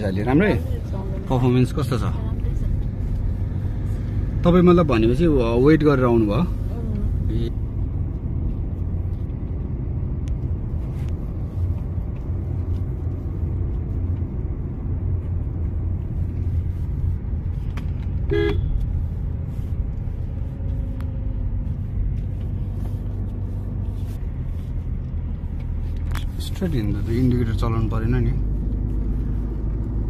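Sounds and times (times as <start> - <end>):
car engine and road noise: 0.0 - 30.0
car horn toot: 18.2 - 18.8.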